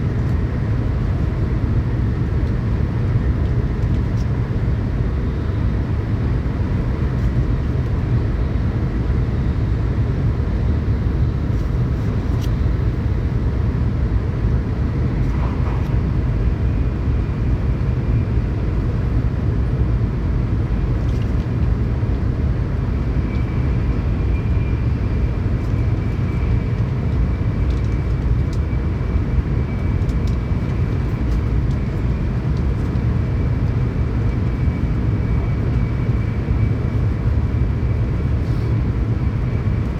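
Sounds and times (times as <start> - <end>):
train wheels rumbling on rails: 14.5 - 19.8.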